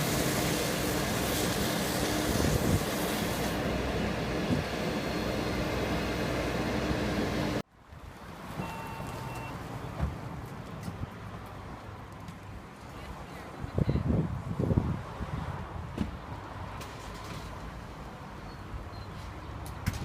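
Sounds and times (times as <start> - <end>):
heavy vehicle engine running: 0.0 - 7.6
loud wind: 0.0 - 8.3, 10.0 - 17.2
short electronic beep: 8.6 - 9.6.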